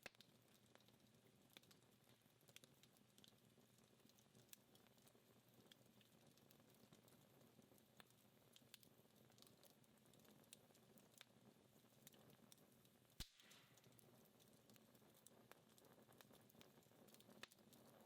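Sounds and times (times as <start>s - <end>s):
wood fire crackling and popping: 0.0s - 18.0s
soft hiss: 11.6s - 18.0s.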